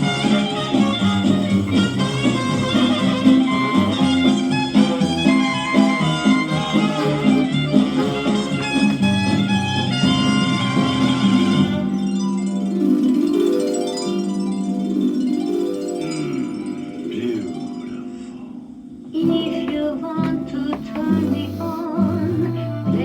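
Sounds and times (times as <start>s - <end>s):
swing jazz band playing: 0.0s - 12.2s.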